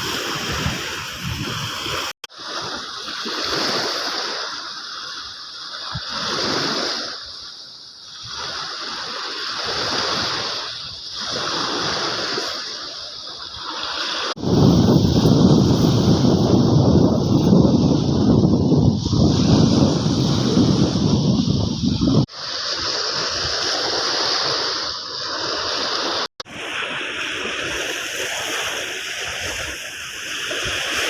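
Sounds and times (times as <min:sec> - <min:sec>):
wind buffeting microphone: 0:00.0 - 0:02.1, 0:14.4 - 0:22.3
sea waves washing on beach: 0:00.0 - 0:31.0.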